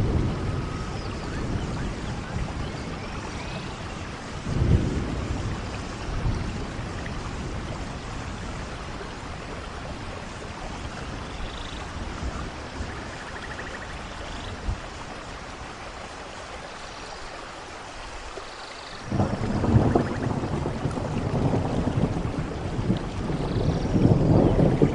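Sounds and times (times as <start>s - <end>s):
rain falling: 0.0s - 24.9s.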